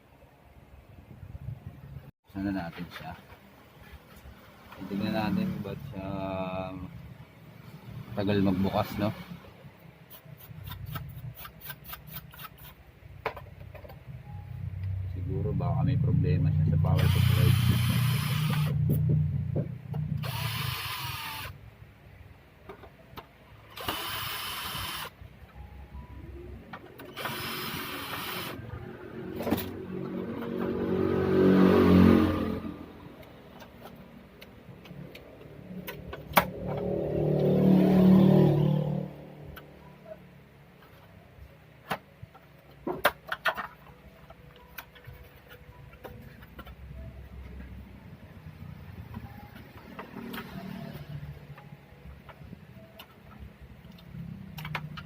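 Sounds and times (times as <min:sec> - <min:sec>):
electric drill running: 0:17.0 - 0:18.8, 0:20.2 - 0:21.6, 0:23.8 - 0:25.2, 0:27.2 - 0:28.6.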